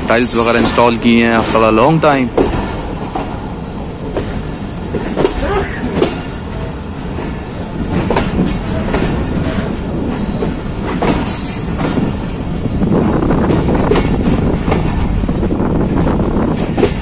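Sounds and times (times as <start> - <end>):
train coaches rumbling: 0.0 - 17.0
high wheel squeal: 10.2 - 11.9.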